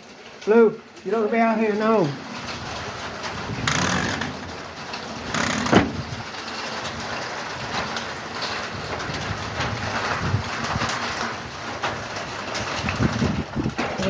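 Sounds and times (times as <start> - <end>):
steady rain falling: 0.0 - 14.0
thump: 5.6 - 6.0.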